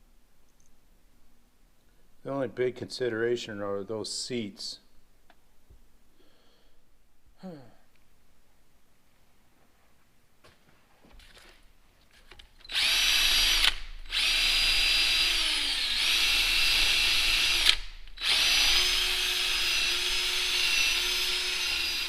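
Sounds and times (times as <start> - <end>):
electric power tool whining: 12.6 - 22.0.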